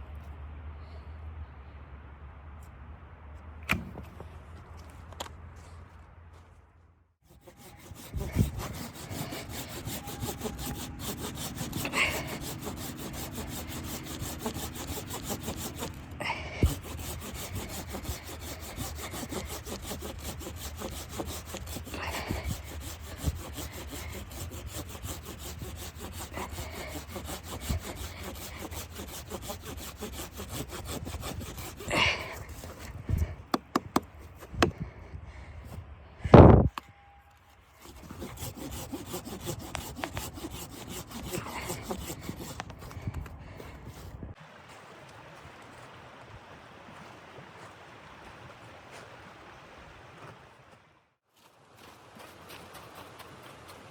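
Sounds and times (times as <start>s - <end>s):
saw rasping through wood: 7.2s - 34.9s, 37.7s - 44.3s
sharp knocks: 33.5s - 34.8s.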